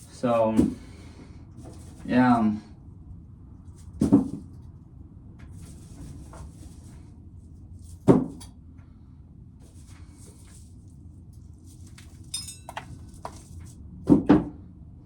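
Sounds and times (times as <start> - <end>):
rustling and scraping of corn cobs: 0.0 - 2.5, 5.5 - 8.1, 9.6 - 13.8.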